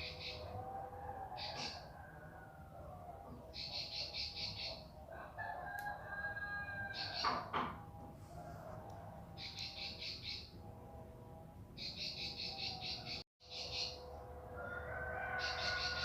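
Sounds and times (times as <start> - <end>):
bird singing rapid high trills: 9.4 - 10.6, 11.8 - 14.1, 15.4 - 16.0.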